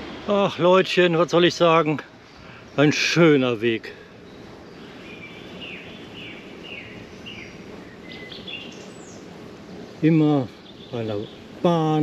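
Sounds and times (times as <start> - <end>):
low background noise: 0.0 - 12.0
small bird singing: 1.2 - 12.0.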